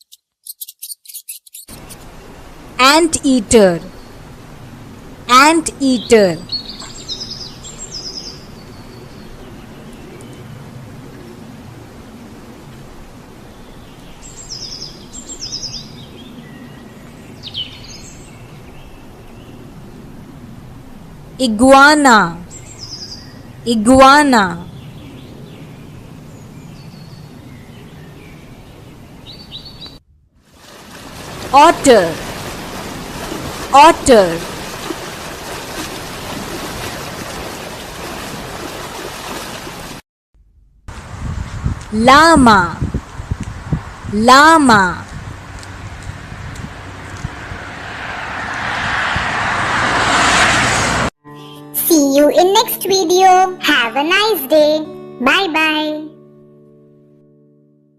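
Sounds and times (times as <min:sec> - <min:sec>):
small bird chirping: 0:00.0 - 0:02.0, 0:22.5 - 0:23.6
running water rushing: 0:30.6 - 0:40.0.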